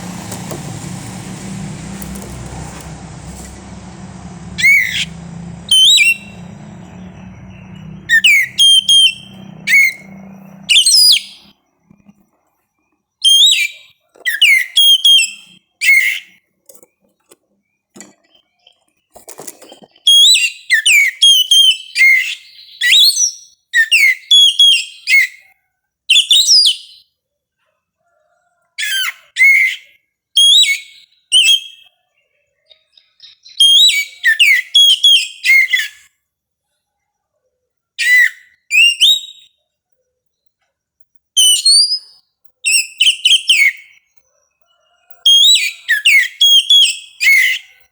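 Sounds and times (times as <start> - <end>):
bird singing whistled phrases: 4.6 - 11.3, 38.0 - 39.5, 41.4 - 44.0, 45.3 - 47.8.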